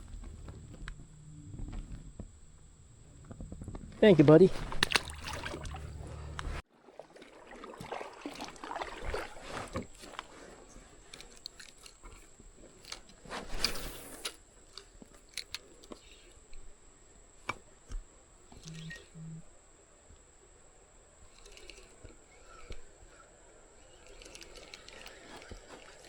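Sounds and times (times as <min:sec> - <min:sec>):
faint high whine: 0:00.0 - 0:06.6, 0:07.6 - 0:26.0
rustling: 0:00.0 - 0:06.6, 0:07.6 - 0:16.8, 0:21.3 - 0:26.0
handling crackles and clicks: 0:11.0 - 0:16.7, 0:21.3 - 0:22.9, 0:23.8 - 0:26.0.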